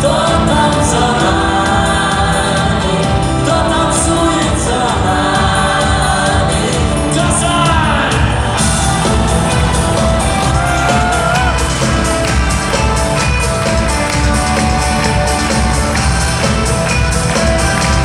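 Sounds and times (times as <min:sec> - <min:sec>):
wordless choir-like singing: 0:00.0 - 0:12.4
live rock band playing: 0:00.0 - 0:18.0.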